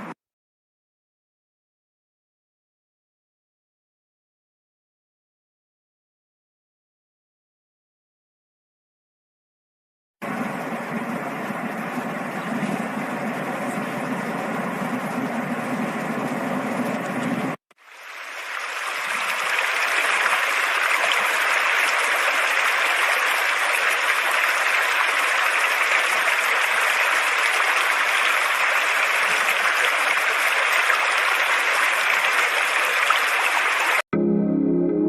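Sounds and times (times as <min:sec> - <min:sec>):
water rushing: 0:10.2 - 0:34.0.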